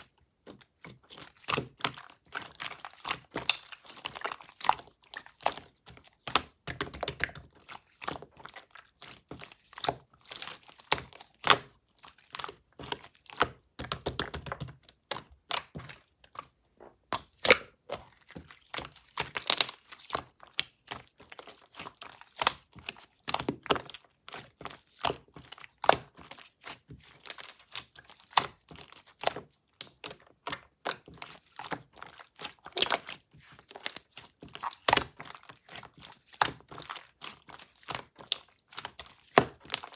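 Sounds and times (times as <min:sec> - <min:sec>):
slime squelching thuds: 0:00.4 - 0:27.6.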